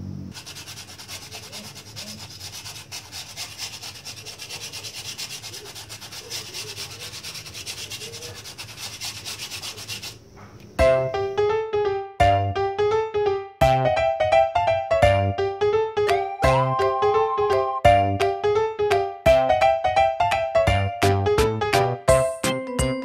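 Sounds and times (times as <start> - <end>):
sandpaper rubbing styrofoam: 0.3 - 10.2
piano music: 10.8 - 23.0.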